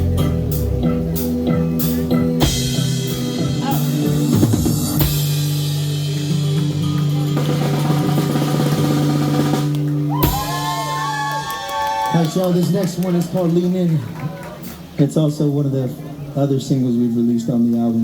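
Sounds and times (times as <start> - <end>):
band playing held chord: 0.0 - 11.0
drum hits: 2.0 - 10.9.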